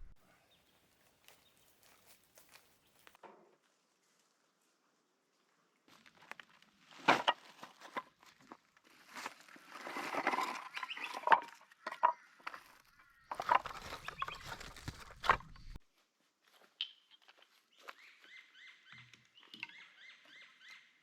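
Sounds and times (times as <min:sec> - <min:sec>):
rustling: 0:05.9 - 0:15.8.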